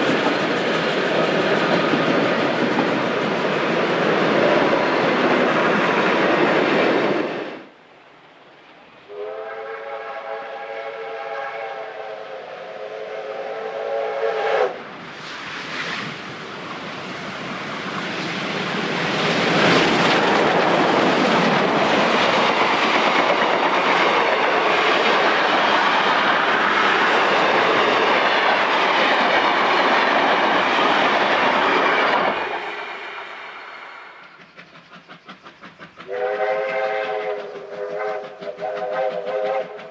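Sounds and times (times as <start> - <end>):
train passing: 0.0 - 39.9
train whistle chord: 9.1 - 14.8, 36.1 - 39.9.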